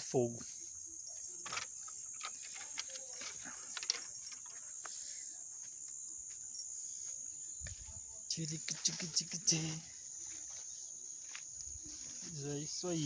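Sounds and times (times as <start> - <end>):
insect chirring: 0.0 - 13.0
dry sticks clicking and rustling: 1.4 - 4.6.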